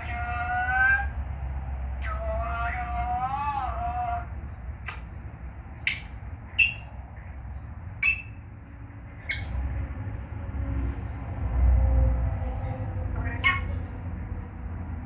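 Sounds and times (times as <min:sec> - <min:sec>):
parrot chirps and clicks: 0:04.8 - 0:05.2, 0:05.8 - 0:07.0, 0:08.0 - 0:08.5.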